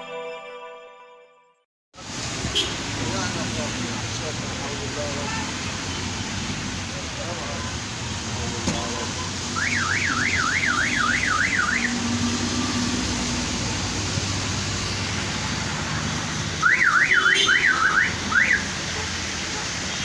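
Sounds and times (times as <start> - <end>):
heavy rain hiss: 2.0 - 16.6, 18.2 - 20.0
car alarm siren warbling: 9.6 - 12.9, 16.6 - 18.7.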